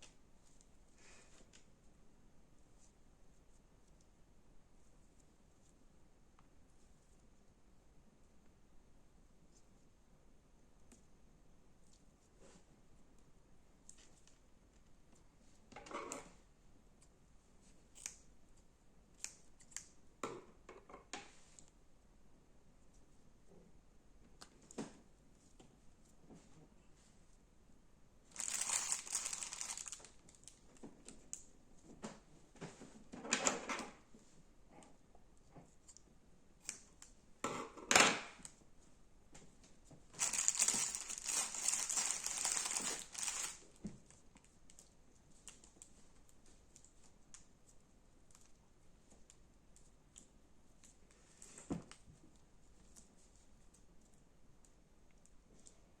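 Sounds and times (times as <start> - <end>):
slime crackling and crunching: 28.3 - 30.2, 40.2 - 43.6.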